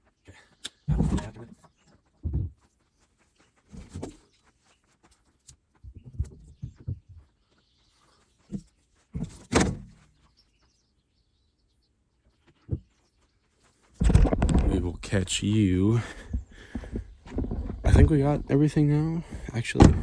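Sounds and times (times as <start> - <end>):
gear thudding and clunking: 0.9 - 1.5, 3.8 - 4.2, 8.5 - 10.0, 14.0 - 20.0.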